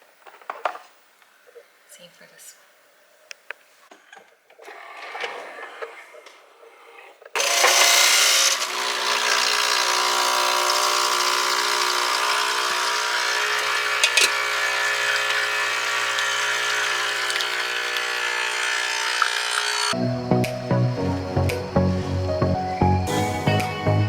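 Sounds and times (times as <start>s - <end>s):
small electric motor running: 7.4s - 20.3s.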